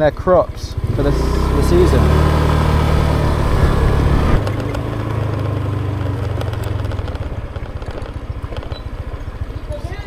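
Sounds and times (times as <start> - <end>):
motorbike engine running: 0.0 - 10.0.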